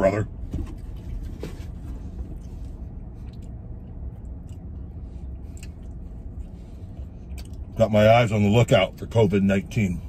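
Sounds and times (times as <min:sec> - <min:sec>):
vehicle cabin rumble: 0:00.0 - 0:10.0
man chewing food: 0:00.8 - 0:07.8.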